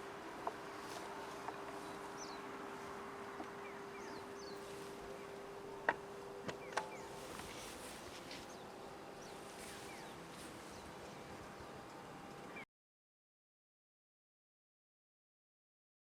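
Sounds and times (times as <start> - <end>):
steady low hum: 0.0 - 12.6
bird chirps: 1.5 - 2.5, 3.3 - 5.6.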